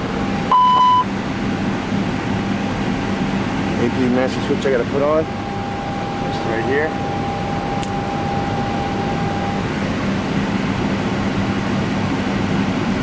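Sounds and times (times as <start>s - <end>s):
fan and machinery noise: 0.0s - 13.0s
low steady hum: 0.0s - 13.0s
steady high tone: 0.2s - 1.1s, 3.9s - 10.2s.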